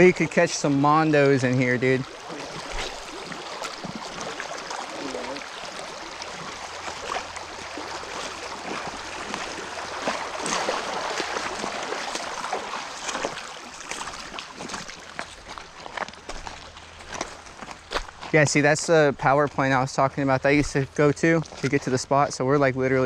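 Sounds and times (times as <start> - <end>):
person wading through water: 0.0 - 18.3
water splashing: 0.0 - 23.0.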